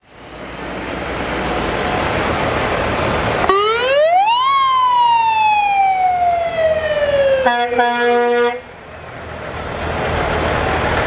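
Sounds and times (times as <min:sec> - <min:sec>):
emergency vehicle siren wailing: 0:01.1 - 0:08.7.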